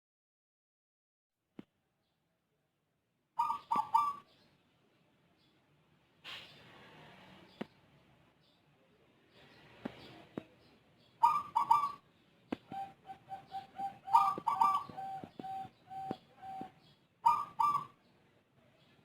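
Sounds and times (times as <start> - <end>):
dove cooing: 3.4 - 4.3, 11.2 - 12.0, 12.6 - 18.0.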